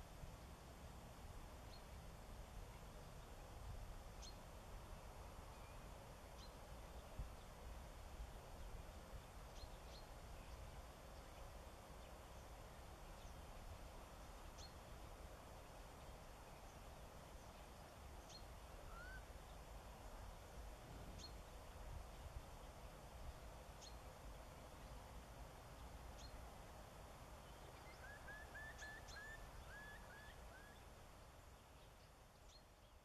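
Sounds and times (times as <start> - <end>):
low ambient noise: 0.0 - 33.0
distant bird calls: 18.2 - 20.0, 27.4 - 33.0.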